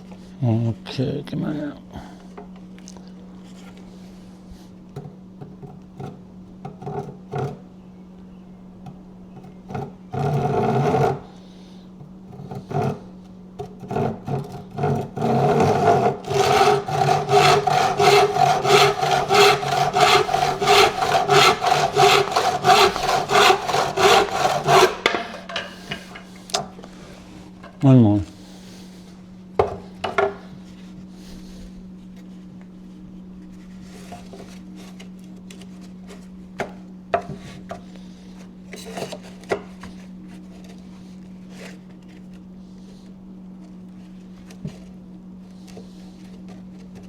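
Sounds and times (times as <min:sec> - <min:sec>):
hand saw strokes on wood: 0:09.6 - 0:27.5, 0:29.8 - 0:47.0.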